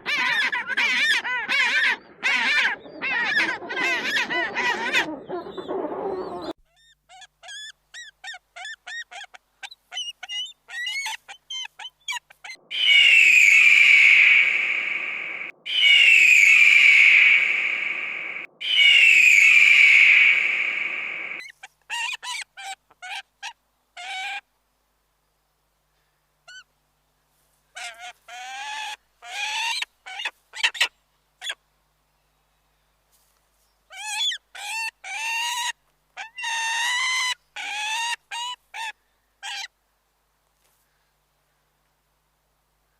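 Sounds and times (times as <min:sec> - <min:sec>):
bird honking calls: 0:12.7 - 0:21.4.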